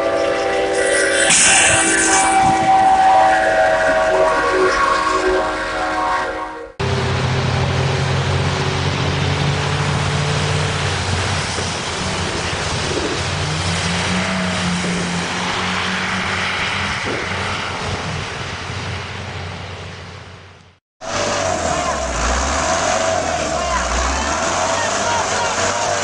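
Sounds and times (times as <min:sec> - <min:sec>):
loud rushing noise: 0:00.5 - 0:05.1, 0:21.0 - 0:26.0
heavy vehicle engine running: 0:06.7 - 0:26.0.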